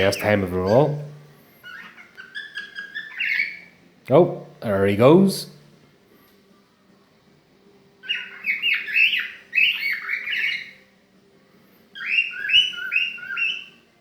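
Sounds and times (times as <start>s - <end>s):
cockatiel chirping: 0.0s - 3.8s, 8.0s - 10.9s, 11.9s - 13.9s.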